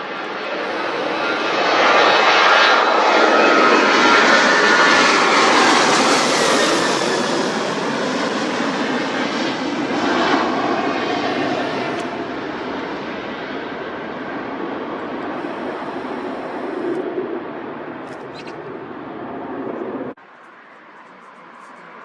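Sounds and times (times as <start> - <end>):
airliner engine passing by: 0.0 - 22.0
high whine falling in pitch: 15.0 - 17.4.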